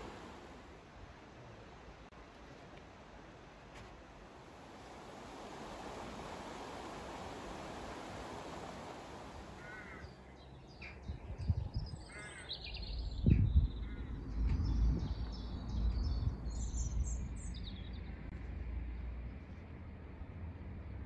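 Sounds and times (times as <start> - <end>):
birds calling: 4.8 - 11.0, 12.0 - 14.2.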